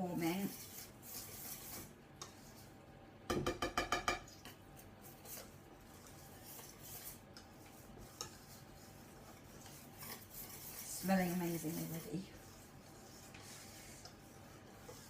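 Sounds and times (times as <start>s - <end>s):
faint stirring ticks: 2.1s - 2.7s, 4.3s - 15.0s
whisk clicking against bowl: 5.2s - 11.9s.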